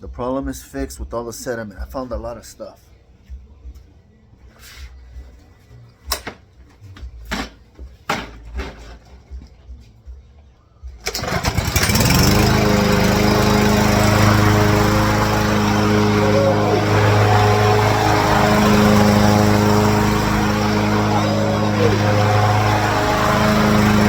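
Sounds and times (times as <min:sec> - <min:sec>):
lawn mower engine running: 0:11.0 - 0:24.0.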